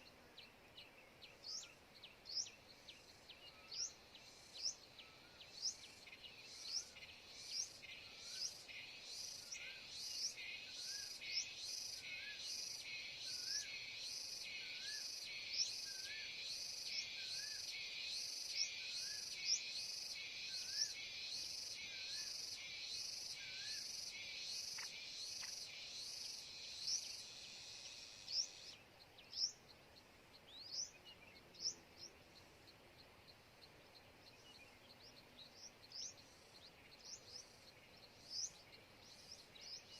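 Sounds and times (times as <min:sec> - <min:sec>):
bird chirping: 0:00.0 - 0:39.9
cicada drone pulsing: 0:03.9 - 0:28.8.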